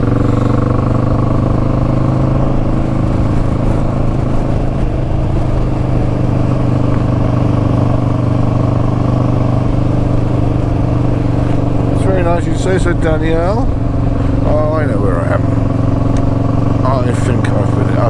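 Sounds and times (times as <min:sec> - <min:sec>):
motorcycle engine droning: 0:00.0 - 0:18.0.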